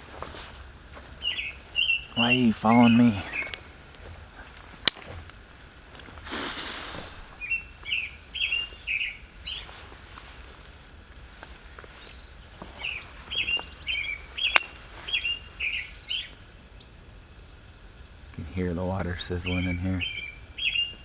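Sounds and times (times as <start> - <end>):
songbird chirping: 0.0 - 21.0
sharp snap: 4.8 - 5.2.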